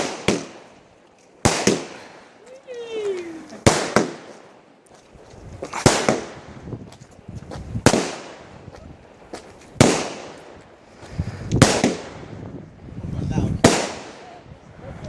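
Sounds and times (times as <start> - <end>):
fireworks loud bangs: 0.0 - 0.7, 1.4 - 2.2, 3.5 - 4.6, 5.6 - 6.8, 7.8 - 8.6, 9.8 - 10.6, 11.5 - 12.5, 13.6 - 14.4
fireworks pops and crackling: 0.0 - 12.4, 13.6 - 14.4.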